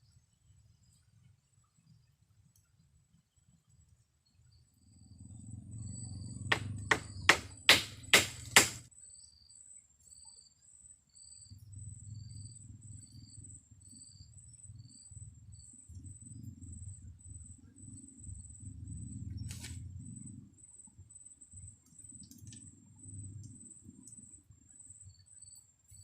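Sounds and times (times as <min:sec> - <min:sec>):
insect chirping: 0:00.0 - 0:26.0
sharp knocks: 0:06.5 - 0:08.8.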